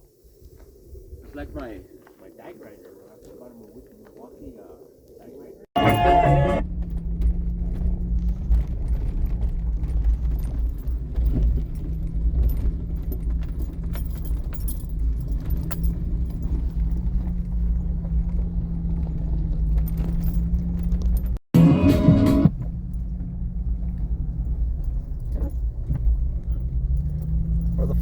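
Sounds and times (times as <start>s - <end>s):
off-road vehicle engine drone: 5.8s - 28.0s.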